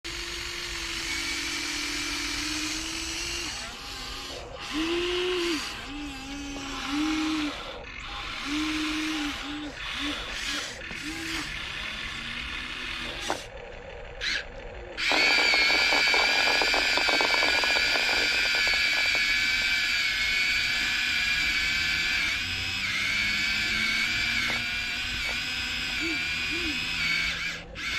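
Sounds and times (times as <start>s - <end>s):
toy excavator motors whining: 0.0s - 27.9s
rapid rattle: 9.8s - 26.0s.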